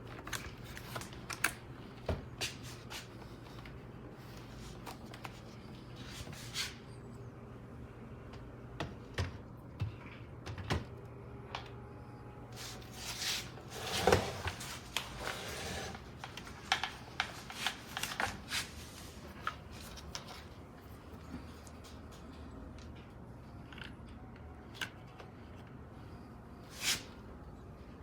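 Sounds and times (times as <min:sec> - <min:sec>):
rustling and scraping: 0:12.6 - 0:20.6.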